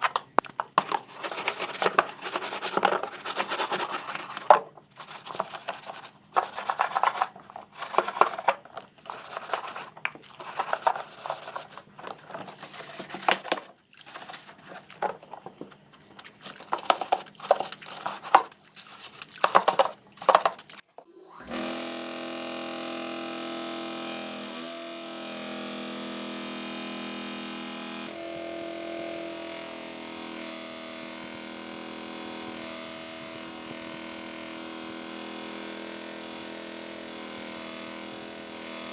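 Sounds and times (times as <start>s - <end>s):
clicking and scraping of handwork: 0.0s - 21.1s.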